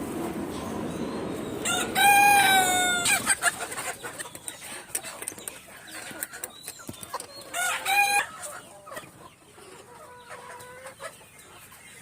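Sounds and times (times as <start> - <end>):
chickens clucking: 0.1 - 12.0
rooster crowing: 1.6 - 3.4.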